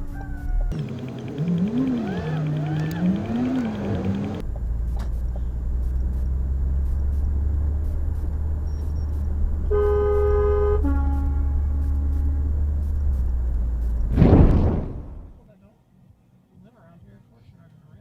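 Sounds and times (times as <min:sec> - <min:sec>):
car driving rumble from inside: 0:00.1 - 0:15.2
car horn: 0:09.7 - 0:12.9
lower-pitched horn tone: 0:09.7 - 0:13.1.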